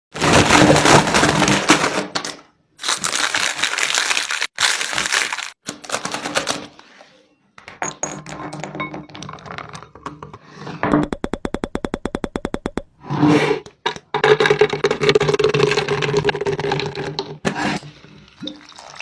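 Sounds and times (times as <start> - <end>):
crackling clattering and clicking: 13.7 - 17.5.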